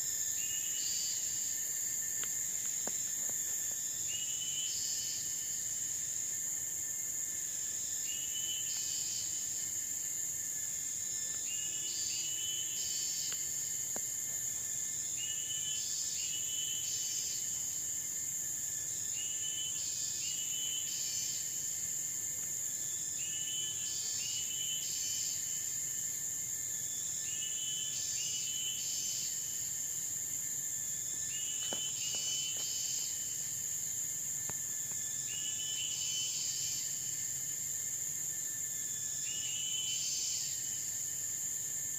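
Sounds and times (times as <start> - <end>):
insects droning at high pitch: 0.0 - 41.9.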